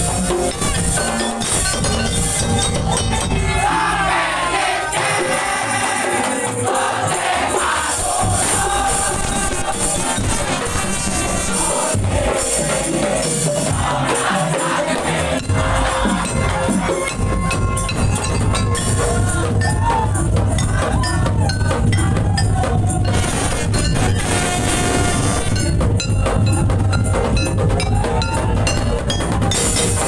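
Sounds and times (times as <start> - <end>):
wood block: 0.0 - 3.9, 13.2 - 30.0
clinking metal percussion: 0.0 - 4.0, 4.9 - 30.0
steady drums: 0.0 - 30.0.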